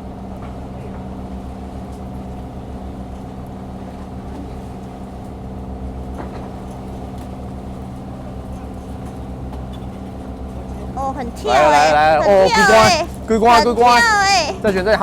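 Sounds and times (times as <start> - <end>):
boat engine droning: 3.6 - 15.0.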